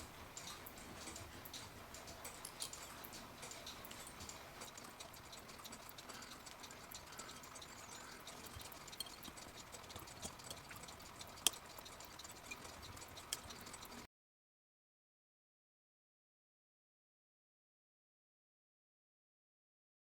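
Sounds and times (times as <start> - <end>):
screwdriver scraping metal spring: 0.0 - 14.0.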